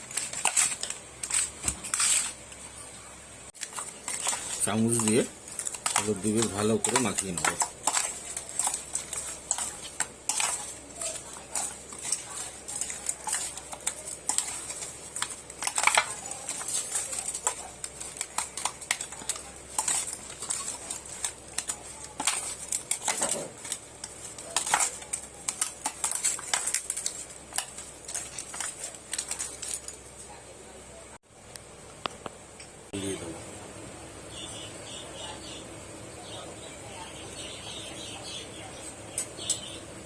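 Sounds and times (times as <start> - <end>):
spoon scraping a dish: 3.6 - 30.0.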